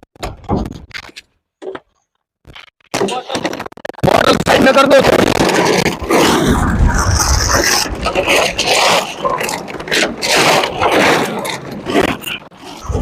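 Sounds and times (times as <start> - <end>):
plastic bottles scraping and crinkling: 2.5 - 13.0.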